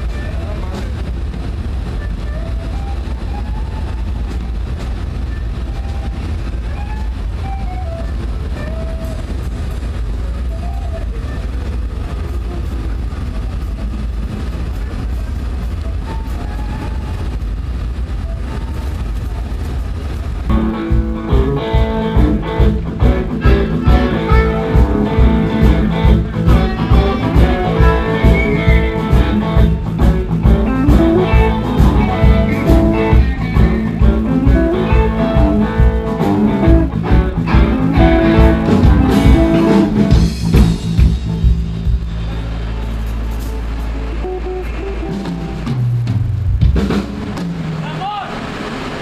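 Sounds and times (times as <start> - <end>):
low steady rumble: 0.0 - 49.0
live blues-rock band playing: 20.4 - 47.5.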